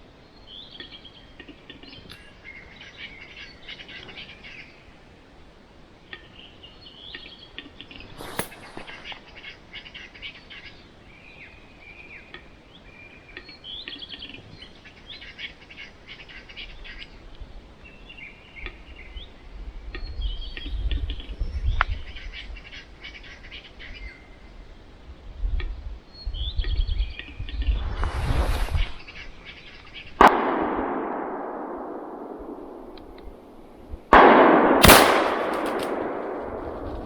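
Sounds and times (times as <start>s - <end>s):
birds chirping and calling: 0.2s - 5.0s, 6.0s - 24.8s, 34.8s - 37.0s
deep rumble: 26.4s - 29.3s.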